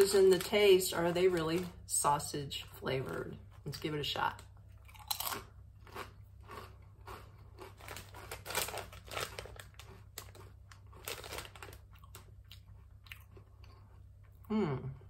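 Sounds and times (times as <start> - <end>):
chewing crisp potato chip: 4.8 - 14.5.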